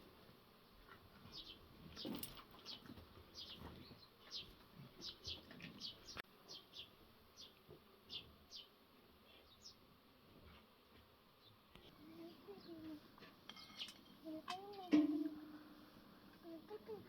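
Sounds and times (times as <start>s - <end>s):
small birds high chirps: 1.3s - 8.8s, 9.4s - 9.8s, 11.4s - 14.8s.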